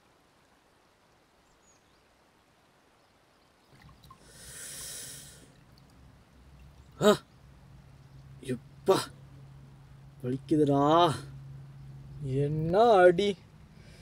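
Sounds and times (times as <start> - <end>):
man's sharp hissing breath: 4.2 - 5.5.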